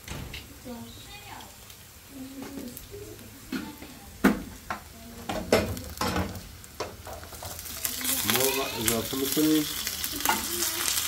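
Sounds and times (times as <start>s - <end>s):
food sizzling in hot oil: 0.0s - 11.0s
pots and utensils clinking: 3.5s - 11.0s.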